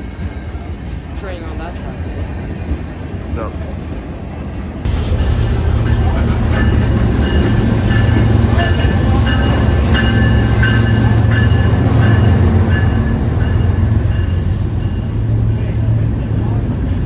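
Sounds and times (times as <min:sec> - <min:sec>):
train rumbling past: 0:00.0 - 0:17.0
high wheel squeals: 0:04.9 - 0:15.9.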